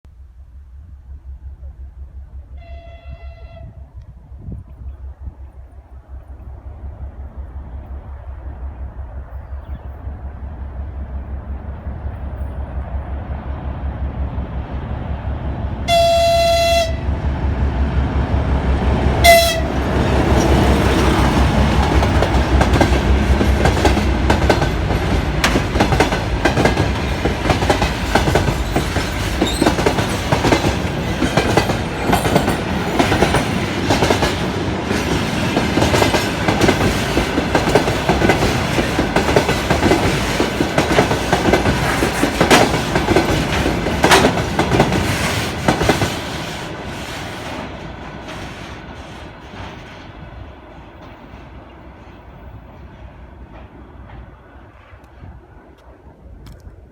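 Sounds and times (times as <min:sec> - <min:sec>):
diesel locomotive engine running: 0:00.2 - 0:50.6
train horn blast: 0:02.5 - 0:04.0, 0:15.8 - 0:17.1, 0:19.2 - 0:20.3
train wheels clattering over rail joints: 0:20.0 - 0:52.8.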